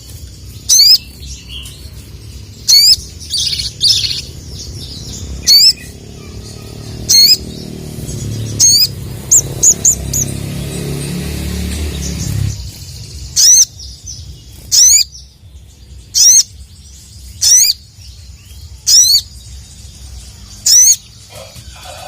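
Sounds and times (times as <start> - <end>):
soft bird twittering: 0.0 - 22.0
bird warbled call notes: 5.2 - 7.7, 12.0 - 14.0.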